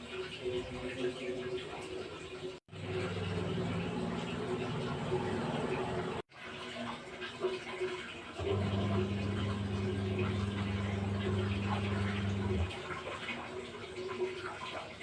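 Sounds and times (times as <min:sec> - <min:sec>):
low steady hum: 0:08.5 - 0:12.7.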